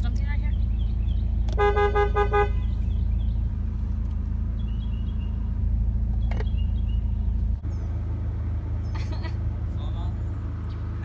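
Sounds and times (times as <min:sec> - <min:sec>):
car rumbling: 0:00.0 - 0:11.0
car horn toot: 0:01.5 - 0:02.8.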